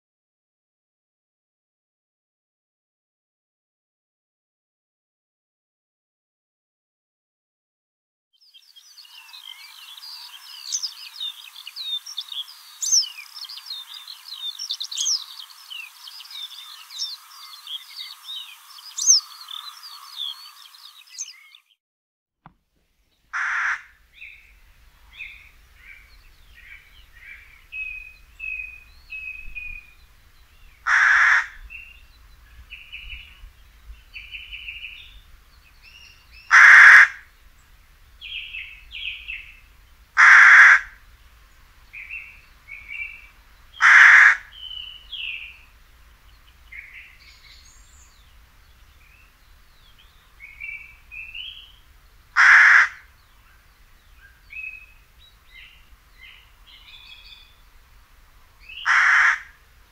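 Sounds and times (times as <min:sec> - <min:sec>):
chirping birdsong: 0:08.4 - 0:21.8, 0:23.1 - 0:59.9
large bird harsh calls: 0:09.1 - 0:21.6, 0:23.3 - 0:33.4, 0:35.8 - 0:37.4, 0:40.2 - 0:41.1, 0:42.0 - 0:45.6, 0:49.0 - 0:57.6, 0:58.6 - 0:59.6.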